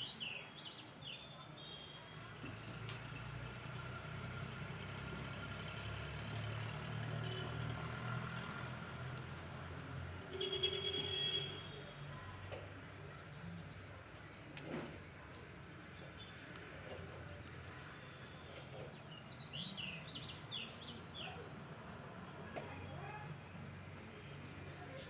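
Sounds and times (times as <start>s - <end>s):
birds chirping: 9.1s - 21.6s.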